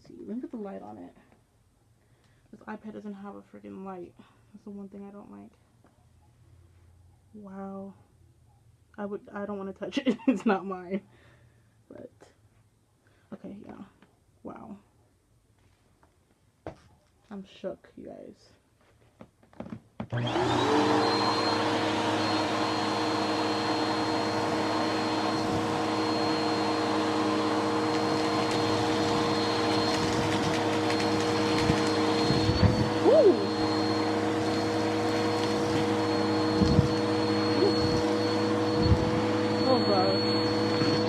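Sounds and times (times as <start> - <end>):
vacuum cleaner motor whining: 20.1 - 41.0.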